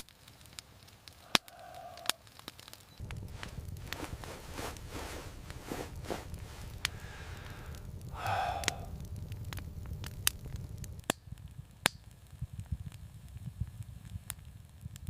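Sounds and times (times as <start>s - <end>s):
sharp pops from fire: 0.0s - 15.0s
wood fire crackling: 0.0s - 15.0s
low steady rumble: 3.0s - 11.8s.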